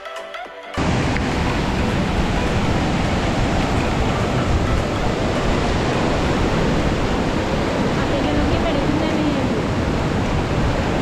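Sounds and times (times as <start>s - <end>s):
background music: 0.0s - 7.1s
waterfall rushing: 0.8s - 11.0s.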